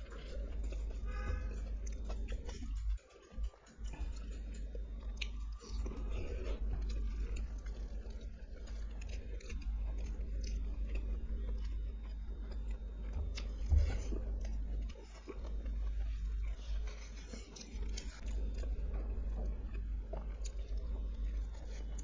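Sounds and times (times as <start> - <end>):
close chewing and biting: 0.0 - 22.0.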